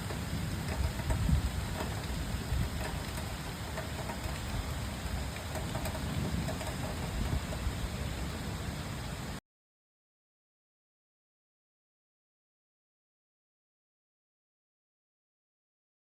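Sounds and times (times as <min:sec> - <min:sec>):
low thunder rumble: 0:00.0 - 0:08.8
rain falling: 0:00.0 - 0:09.4.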